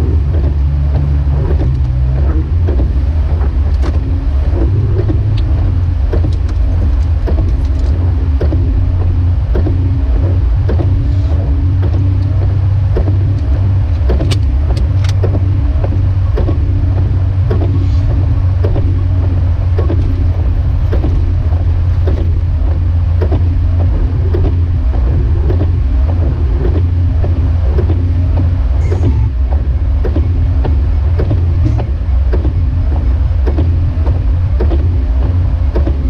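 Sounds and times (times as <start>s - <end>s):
engine and road rumble: 0.0s - 36.0s.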